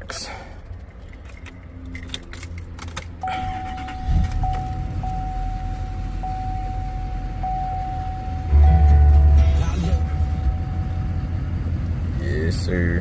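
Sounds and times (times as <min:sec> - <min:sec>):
pickup engine starting and idling: 0:00.6 - 0:13.0
warning chime: 0:03.2 - 0:11.8.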